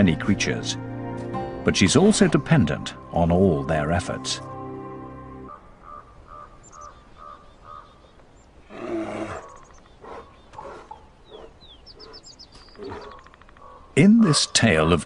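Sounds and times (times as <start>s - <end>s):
faint bird chirps: 5.5s - 14.5s
bear roaring: 8.7s - 11.5s, 12.8s - 13.2s
bear grunting: 8.7s - 12.2s, 12.8s - 13.2s.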